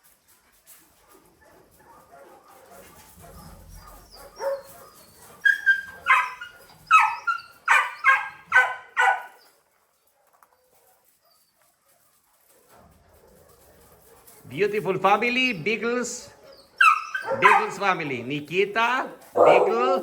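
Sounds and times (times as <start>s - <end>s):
dog barking: 1.4s - 9.4s, 16.8s - 18.0s, 19.3s - 20.0s.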